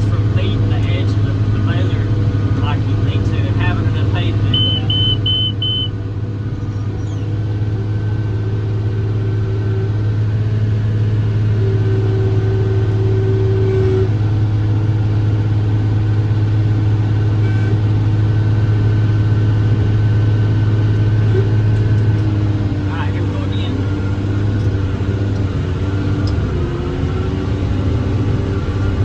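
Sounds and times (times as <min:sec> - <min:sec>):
tractor diesel engine under load: 0:00.0 - 0:29.0
short high beeps: 0:04.5 - 0:06.0.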